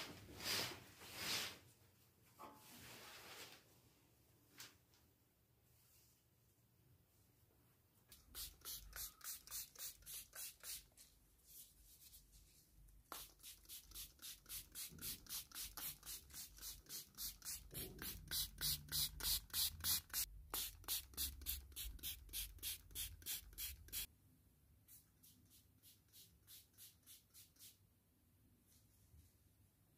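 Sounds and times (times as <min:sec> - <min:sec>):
rhythmic rubbing strokes: 0:13.1 - 0:24.1.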